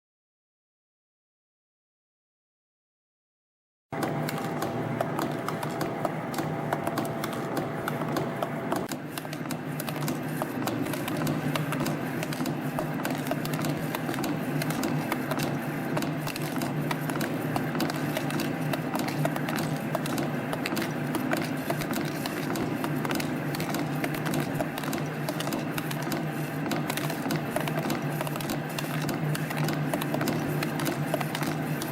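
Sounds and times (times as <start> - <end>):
machine hum: 4.0 - 31.9.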